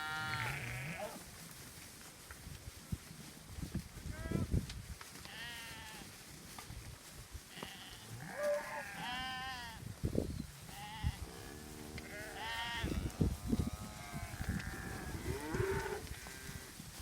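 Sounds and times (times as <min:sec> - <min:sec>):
sheep bleating: 0:00.0 - 0:01.2, 0:07.5 - 0:09.8, 0:12.0 - 0:13.0.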